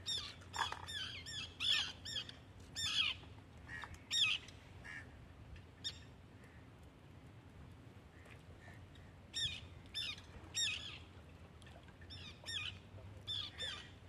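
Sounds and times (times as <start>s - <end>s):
bird calling: 0.0s - 5.0s.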